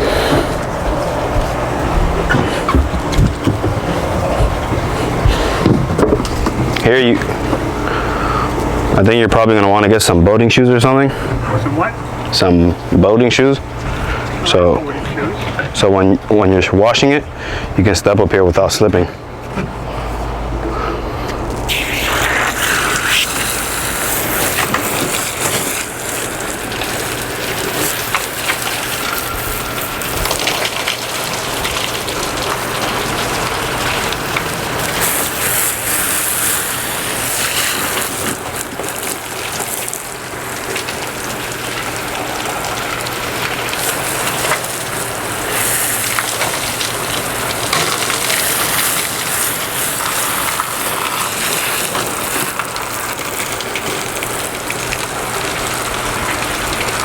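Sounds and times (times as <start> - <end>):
water spraying from a hose: 0.0 - 9.5, 21.5 - 57.0.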